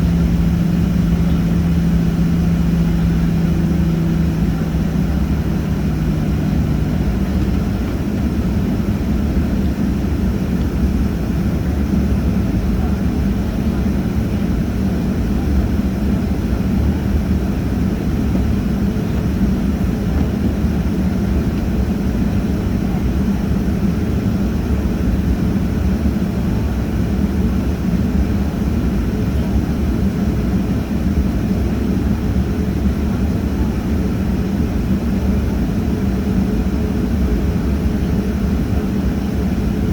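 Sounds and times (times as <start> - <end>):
airliner engines running: 0.0 - 39.9.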